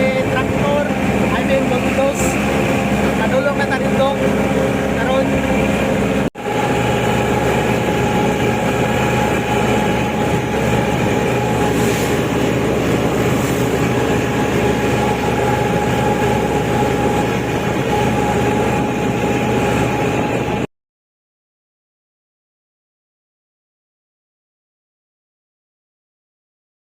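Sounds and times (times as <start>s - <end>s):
steady whine: 0.0s - 20.7s
tractor diesel engine running: 0.0s - 20.7s.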